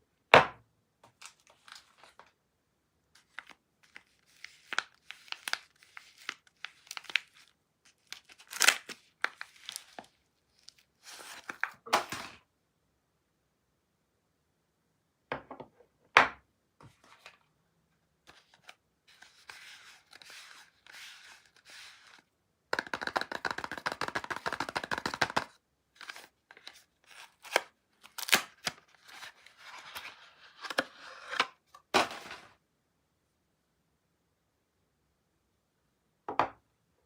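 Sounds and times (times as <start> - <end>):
soft rustling of packaging: 1.0 - 2.4, 3.0 - 12.5, 16.8 - 32.6
crackling tearing of packaging: 3.3 - 10.1, 27.1 - 29.8.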